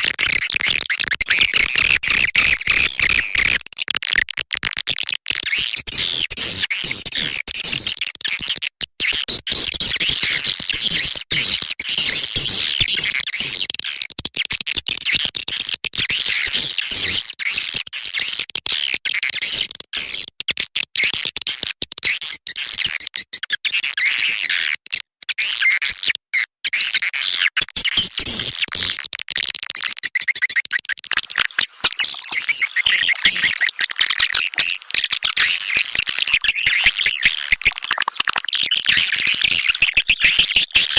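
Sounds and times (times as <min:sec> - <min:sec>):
swiftlet twittering and chirping: 0:31.1 - 0:40.9.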